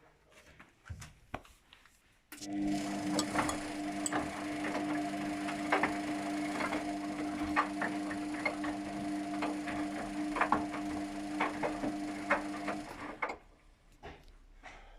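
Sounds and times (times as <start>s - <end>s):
washing machine motor hum: 2.4s - 13.6s.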